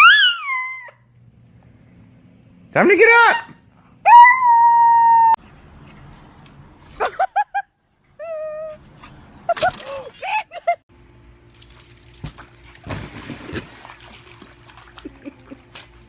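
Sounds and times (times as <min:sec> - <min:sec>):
dog whimpering and yipping: 0:00.0 - 0:01.0, 0:08.2 - 0:08.9.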